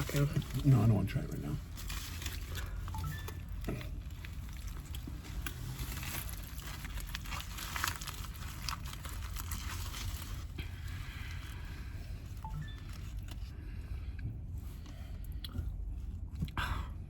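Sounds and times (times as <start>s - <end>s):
food packaging crinkling: 1.6s - 11.6s.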